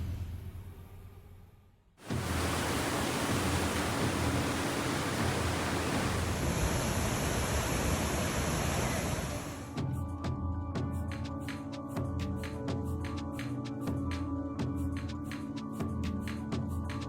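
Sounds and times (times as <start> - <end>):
water rushing: 2.0 - 9.7.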